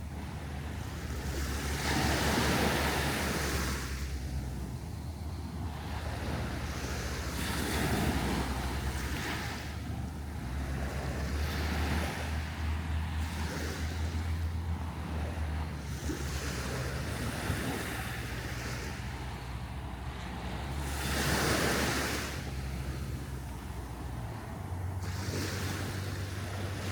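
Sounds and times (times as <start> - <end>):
surf washing onto beach: 0.0 - 26.9
wind buffeting microphone: 0.0 - 26.9.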